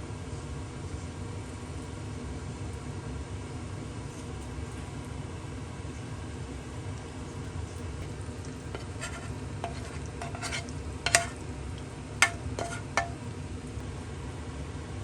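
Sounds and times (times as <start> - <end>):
food sizzling: 8.0 - 13.8
utensil knocking against frying pan: 8.7 - 11.4, 12.2 - 13.2.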